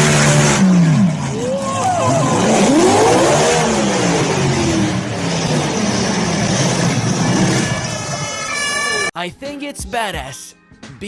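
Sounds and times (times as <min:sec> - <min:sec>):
car engine revving hard: 0:00.0 - 0:08.2
exhaust rushing: 0:00.0 - 0:09.0.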